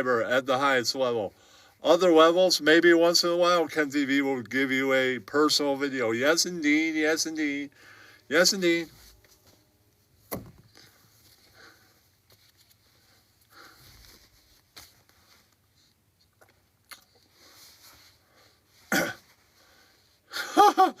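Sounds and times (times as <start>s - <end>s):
faint breathing: 1.4s - 1.8s, 7.7s - 8.3s, 10.7s - 12.2s, 12.8s - 14.4s, 19.5s - 20.3s.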